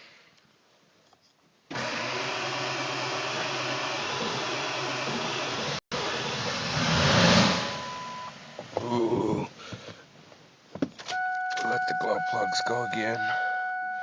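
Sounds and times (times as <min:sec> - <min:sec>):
diesel engine cranking by starter: 0:01.7 - 0:08.5.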